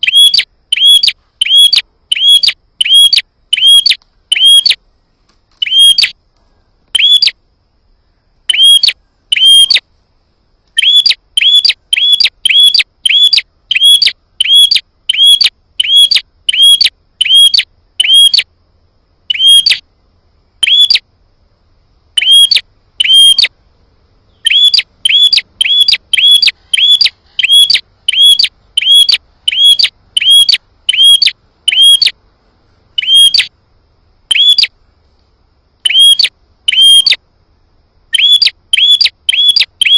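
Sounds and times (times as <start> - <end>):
bird calls sharp upward notes: 0.0 - 4.8, 5.6 - 6.2, 8.5 - 9.8, 10.8 - 18.4, 19.3 - 19.8, 20.6 - 21.0, 22.2 - 23.5, 24.3 - 32.2, 33.0 - 33.5, 34.3 - 34.7, 35.9 - 37.2, 38.2 - 39.9.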